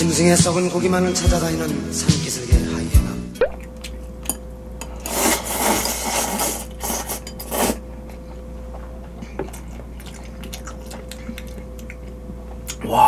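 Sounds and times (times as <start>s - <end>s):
person slurping noodles: 5.0s - 7.8s.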